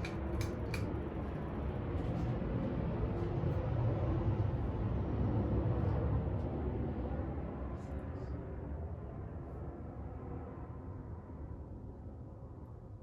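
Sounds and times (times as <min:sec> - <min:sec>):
ceiling fan running: 0:00.0 - 0:01.2.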